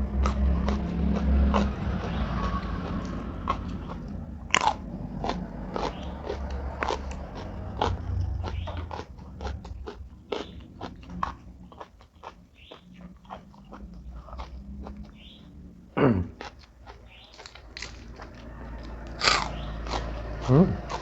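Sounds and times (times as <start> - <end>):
person chewing crisp food: 0.0 - 21.0.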